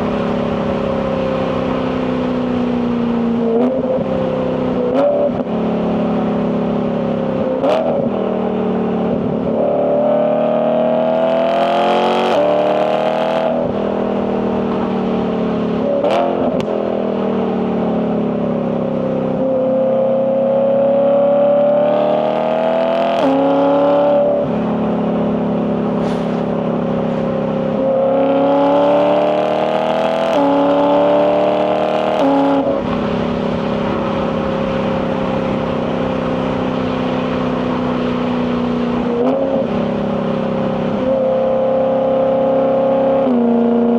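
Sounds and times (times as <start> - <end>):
car engine accelerating through gears: 0.0 - 43.9.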